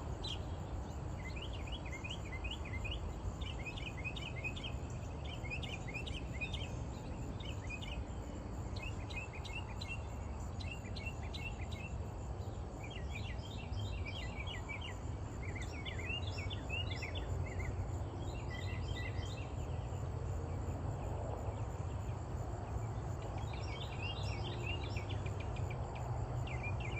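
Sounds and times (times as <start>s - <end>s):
small birds chirping: 0.0s - 20.6s.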